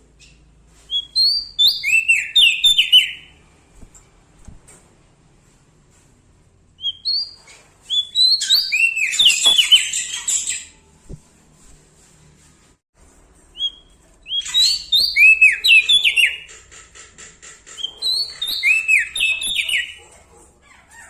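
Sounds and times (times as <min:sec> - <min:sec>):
songbird whistling: 0:00.2 - 0:03.4, 0:06.8 - 0:10.8, 0:13.5 - 0:16.5, 0:17.8 - 0:20.0.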